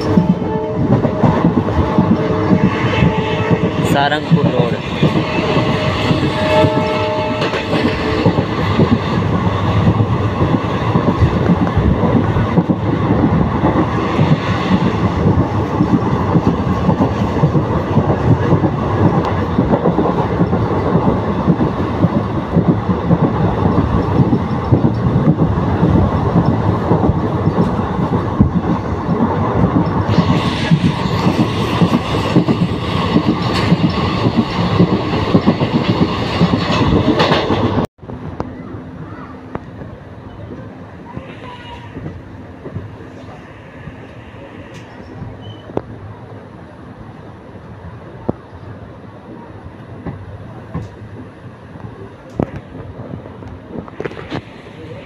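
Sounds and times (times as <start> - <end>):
train wheels clattering over rails: 0.0 - 37.9
rushing air: 0.0 - 38.2, 41.1 - 46.2, 52.5 - 55.0.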